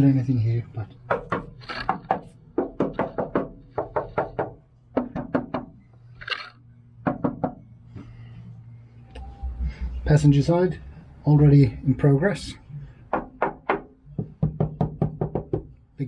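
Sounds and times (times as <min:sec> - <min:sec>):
knuckles knocking on sheet steel: 0:01.1 - 0:05.7, 0:13.1 - 0:15.7.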